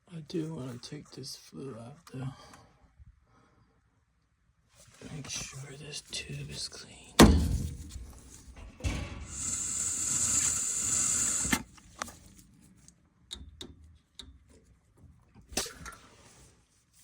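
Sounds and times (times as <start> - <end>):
air hissing through a tube: 9.3 - 11.6.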